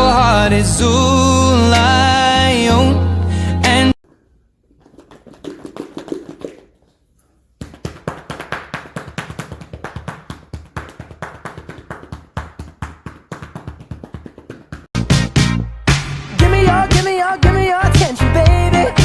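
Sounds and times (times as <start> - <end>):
fast sharp taps: 4.9 - 6.7, 7.6 - 15.0.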